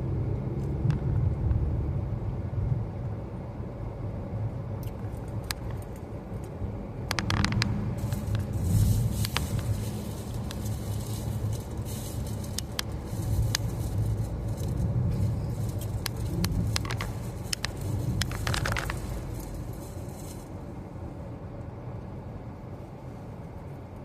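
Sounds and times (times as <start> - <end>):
car cabin rumble: 4.8 - 21.3
small clicks and rattles: 7.1 - 20.5.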